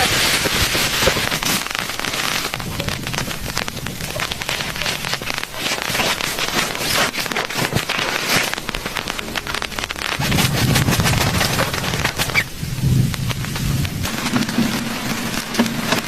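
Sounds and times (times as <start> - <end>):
heavy rain pattering: 0.0 - 16.0
low rumble: 1.7 - 5.4, 8.6 - 15.2.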